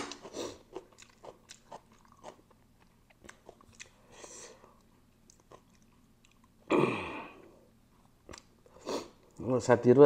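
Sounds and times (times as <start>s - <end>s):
chewing clicks and lip smacks: 0.0s - 4.0s, 4.8s - 6.6s, 8.2s - 8.6s.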